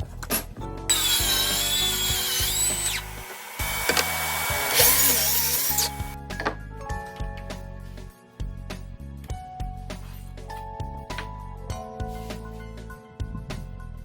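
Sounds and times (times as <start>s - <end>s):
background music: 0.0s - 14.0s
power drill whining: 0.9s - 6.2s.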